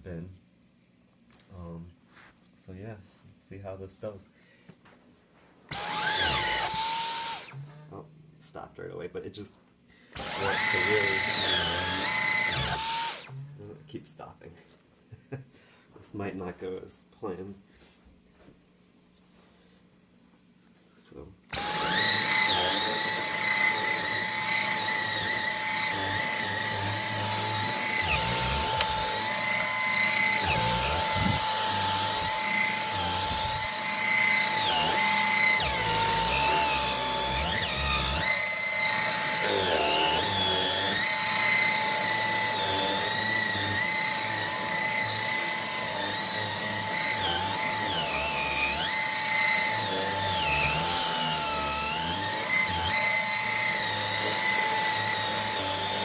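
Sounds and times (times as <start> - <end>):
vacuum motor whine: 5.7 - 8.0, 10.2 - 13.5, 21.5 - 56.0.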